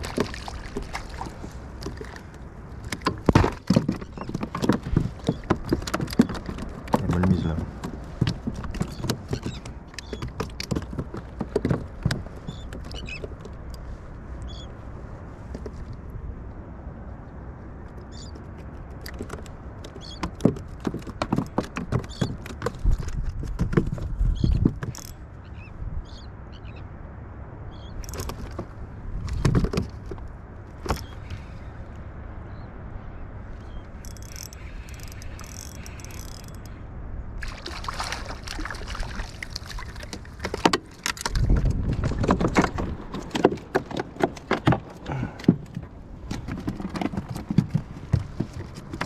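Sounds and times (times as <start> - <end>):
fishing gear knocking and clattering: 0.0 - 13.8, 18.6 - 25.2, 28.0 - 30.2, 34.0 - 36.7, 39.8 - 49.0.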